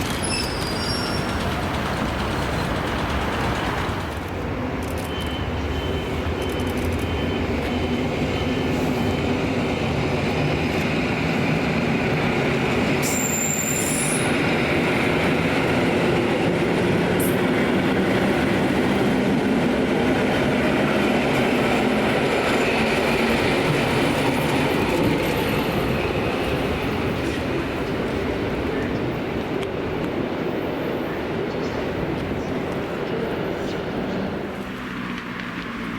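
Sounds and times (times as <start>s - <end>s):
faint wheel squeal: 0.0s - 1.5s, 13.1s - 14.3s
train wheels rumbling: 0.0s - 35.9s.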